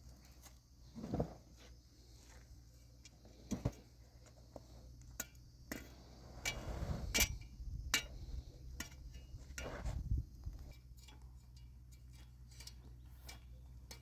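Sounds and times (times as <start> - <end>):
scuffling: 0.1 - 2.6.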